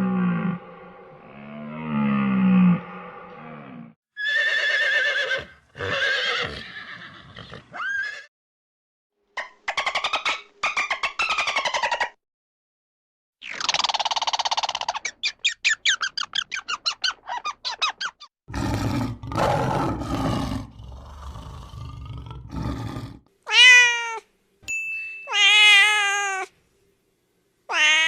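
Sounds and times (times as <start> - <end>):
low rough animal call: 0.0 - 4.0
cat meowing: 23.5 - 24.3, 25.3 - 26.5, 27.7 - 28.0.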